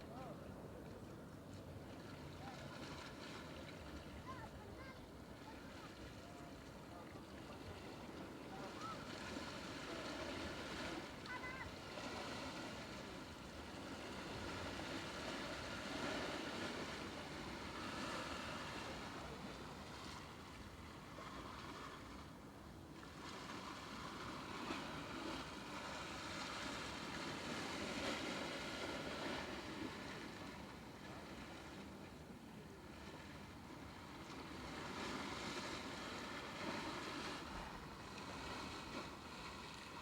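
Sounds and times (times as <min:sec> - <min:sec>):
wind: 0:00.0 - 0:40.0
water rushing: 0:08.5 - 0:11.8.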